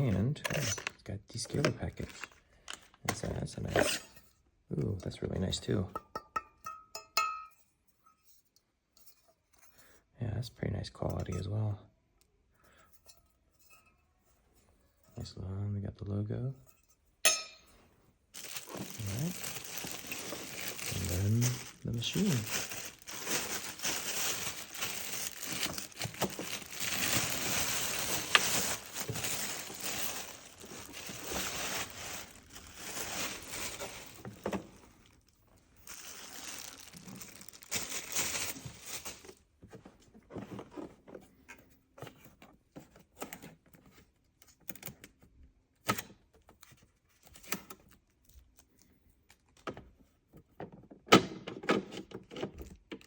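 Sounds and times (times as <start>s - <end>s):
packaging crinkling and tearing: 0.0s - 4.0s, 18.4s - 39.4s.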